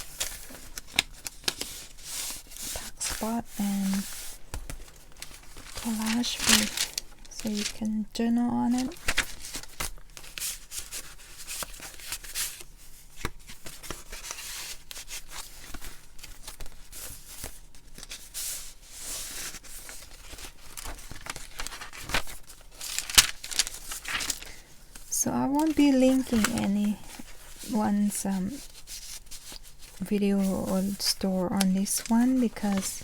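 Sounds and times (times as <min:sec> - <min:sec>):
paper pages rustling: 0:00.0 - 0:33.0.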